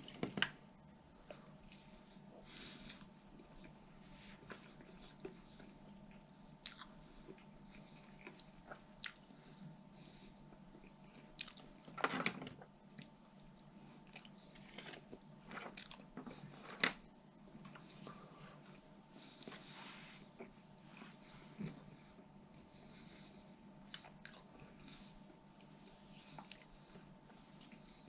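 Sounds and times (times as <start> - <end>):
person chewing and crunching food: 1.2 - 12.0, 12.6 - 16.8, 22.9 - 28.0.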